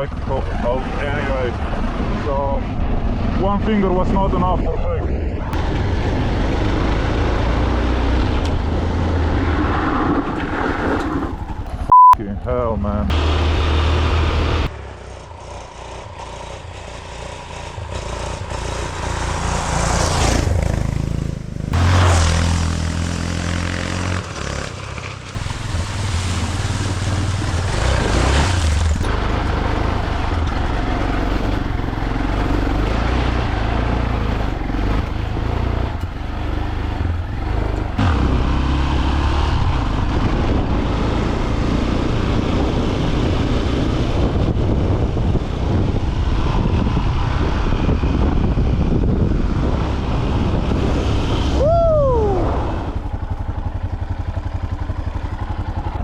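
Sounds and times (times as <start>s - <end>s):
rushes of noise: 12.9s - 53.5s
dirt bike engine revving: 13.1s - 45.0s.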